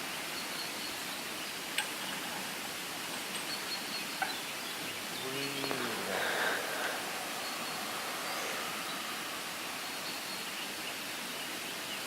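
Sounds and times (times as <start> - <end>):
steady rushing ambience: 4.7 - 11.8.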